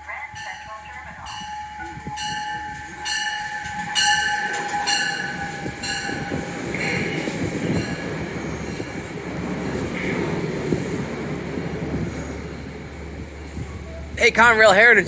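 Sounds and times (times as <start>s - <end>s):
train wheels rumbling on rail: 0.0s - 15.0s
train wheel squeals: 1.3s - 9.1s.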